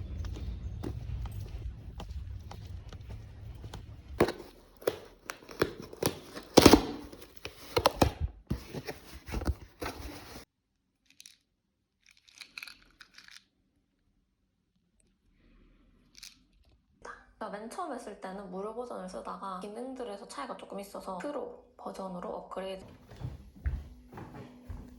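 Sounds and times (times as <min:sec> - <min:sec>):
paper rustling and tearing: 0:04.2 - 0:10.4.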